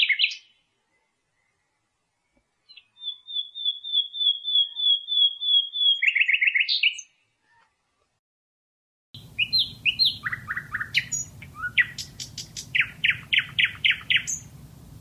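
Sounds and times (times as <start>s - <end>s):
nightingale singing: 0.0s - 7.6s, 9.2s - 15.0s
low background rumble: 9.2s - 15.0s.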